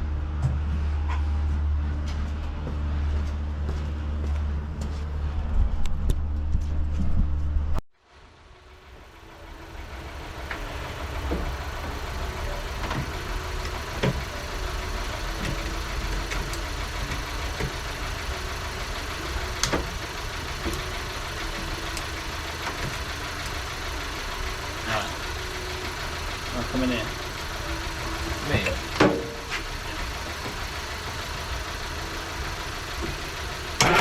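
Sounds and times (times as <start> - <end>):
car engine idling: 8.0 - 34.0.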